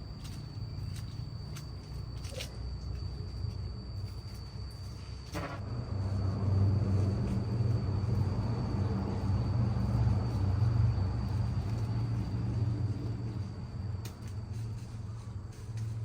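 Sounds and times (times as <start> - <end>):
faint high whine: 0.0 - 16.0
low engine rumble: 5.4 - 16.0.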